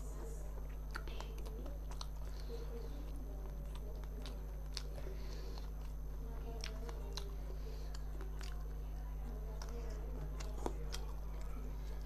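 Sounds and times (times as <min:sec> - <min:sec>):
low electrical hum: 0:00.0 - 0:12.0
man chewing: 0:00.6 - 0:02.6, 0:03.6 - 0:06.0, 0:06.6 - 0:08.7.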